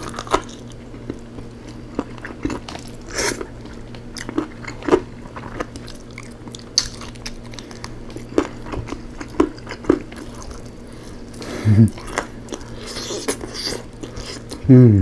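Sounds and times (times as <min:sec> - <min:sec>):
man chewing food: 0:00.0 - 0:14.6.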